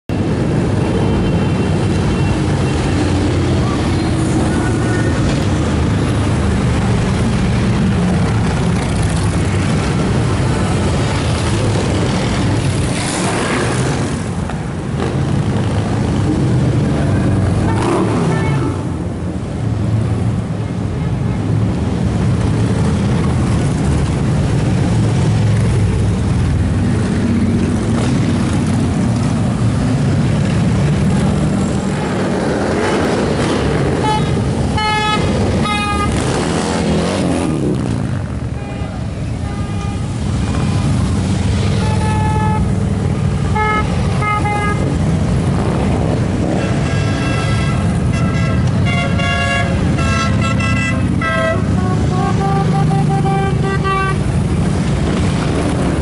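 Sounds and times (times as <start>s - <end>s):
motorcycles rumbling past: 2.4s - 18.9s
horn honking: 17.6s - 18.9s, 34.0s - 36.3s, 41.7s - 42.8s, 43.4s - 44.9s, 46.6s - 54.4s.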